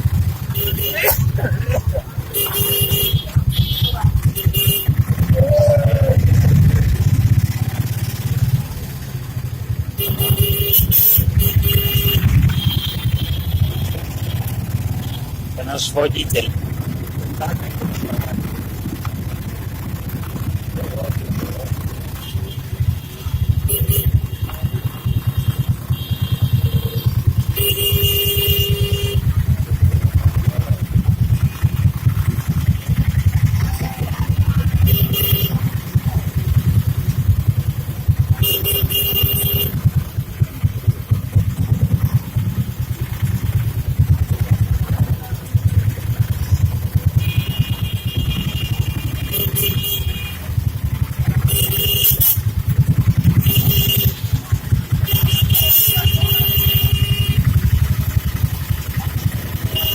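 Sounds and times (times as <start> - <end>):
low traffic rumble: 0.0 - 59.9
motorcycle engines: 0.0 - 59.9
vehicle horns honking: 0.1 - 5.4, 9.7 - 16.5, 21.8 - 30.1, 33.8 - 40.7, 46.2 - 59.9.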